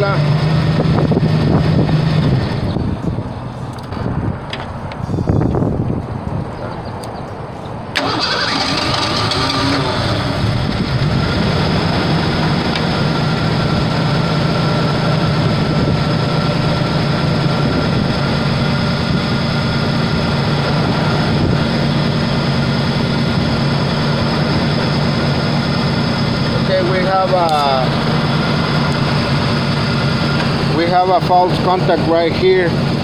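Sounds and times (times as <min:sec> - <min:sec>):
car engine idling: 0:08.0 - 0:33.0.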